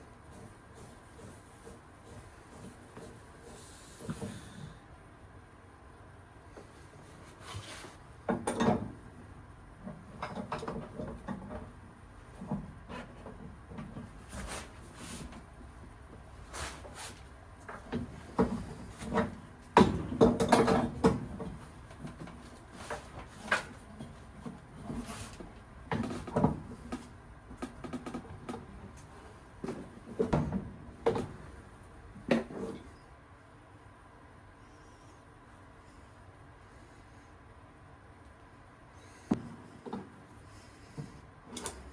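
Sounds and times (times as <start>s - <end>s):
objects knocking and clattering: 8.3s - 9.0s, 9.8s - 14.4s, 17.7s - 31.5s.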